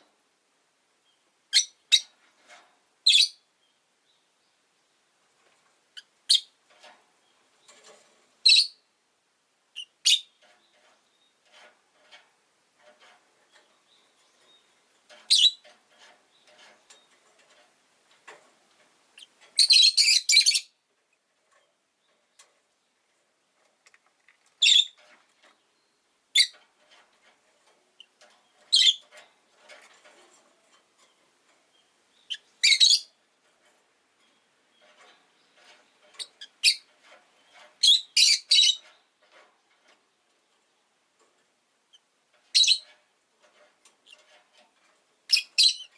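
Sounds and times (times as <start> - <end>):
high-pitched bird chirps: 8.5 - 8.8, 19.2 - 20.7, 32.2 - 33.1, 37.8 - 38.8, 42.6 - 42.8, 45.3 - 45.9
soft bird twittering: 31.7 - 33.2.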